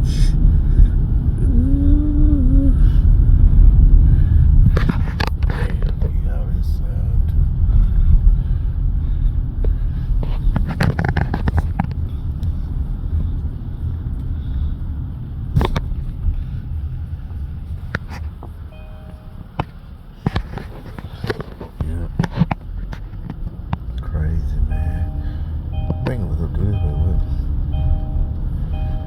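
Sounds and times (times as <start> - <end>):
car road and engine rumble: 0.0 - 29.0.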